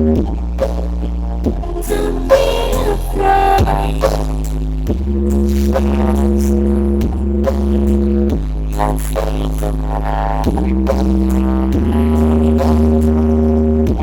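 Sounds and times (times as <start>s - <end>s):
heavy steady bass: 0.0s - 14.0s
music over loud sound system: 0.1s - 14.0s
sustained synth chords: 1.5s - 4.0s.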